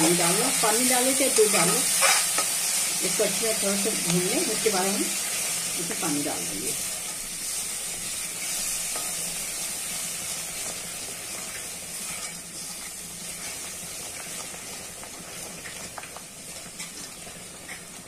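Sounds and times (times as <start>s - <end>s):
gravy sizzling in a pan: 0.0s - 18.0s
steel spoon stirring and scraping: 1.4s - 2.7s, 10.3s - 15.9s.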